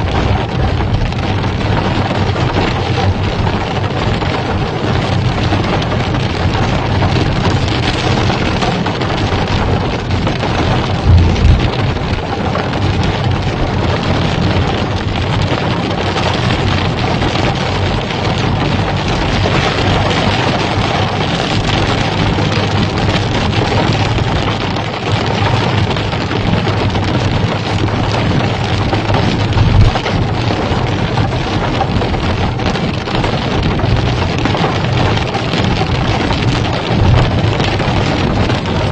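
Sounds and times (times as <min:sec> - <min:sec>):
heavy rain pouring: 0:00.0 - 0:38.9
low thump: 0:10.9 - 0:12.2.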